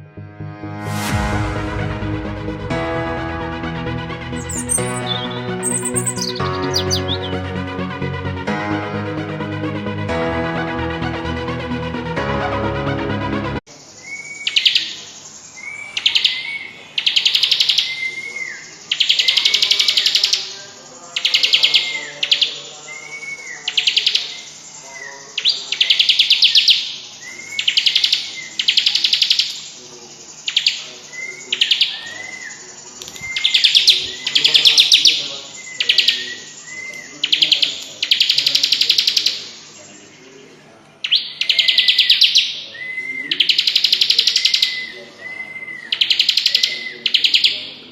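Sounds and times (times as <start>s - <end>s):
electronic music: 0.0s - 13.7s
bird thin whistled notes: 4.4s - 7.3s
bird singing whistled trills: 4.4s - 7.4s, 13.9s - 29.6s, 30.3s - 40.2s, 41.0s - 47.9s.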